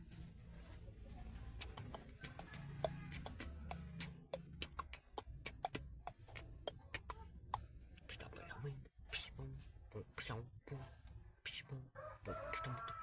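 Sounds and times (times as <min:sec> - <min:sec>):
beatboxing clicks and pops: 0:01.6 - 0:08.4.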